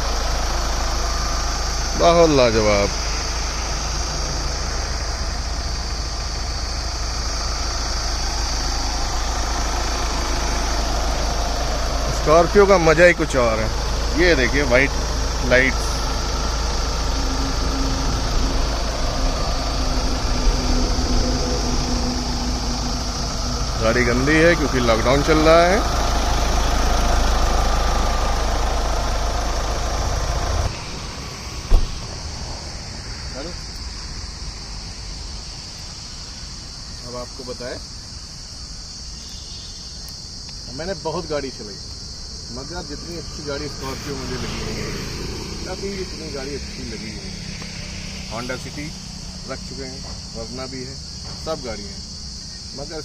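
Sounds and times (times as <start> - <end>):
diesel engine idling: 0.0 - 39.1, 40.1 - 53.0
loud thump: 31.6 - 32.2.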